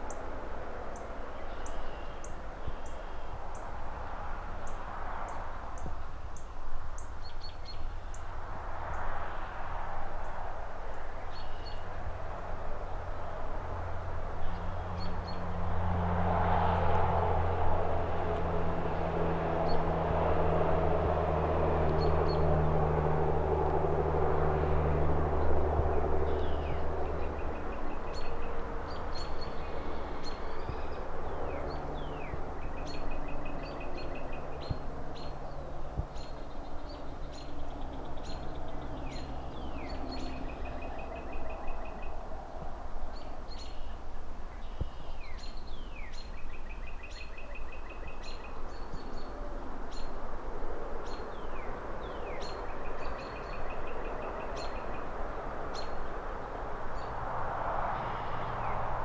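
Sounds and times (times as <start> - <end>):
low traffic rumble: 0.0 - 59.0
vehicle passing: 7.7 - 59.0
small birds chirping: 26.2 - 42.2, 43.1 - 50.2, 51.0 - 55.1.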